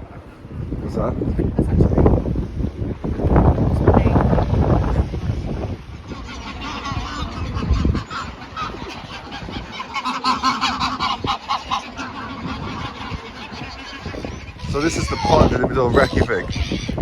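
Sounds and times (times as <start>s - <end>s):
geese and swans honking: 5.9s - 17.0s.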